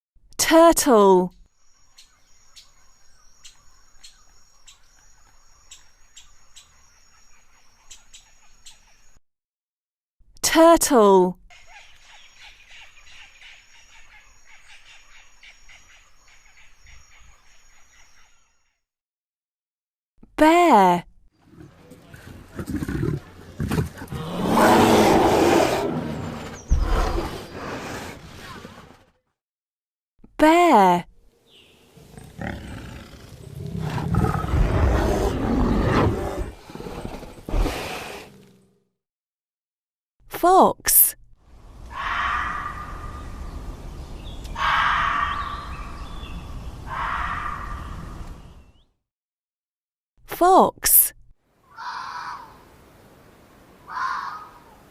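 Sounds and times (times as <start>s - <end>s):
bear growling: 21.5s - 28.7s, 31.9s - 38.6s
frogs calling: 46.9s - 48.0s.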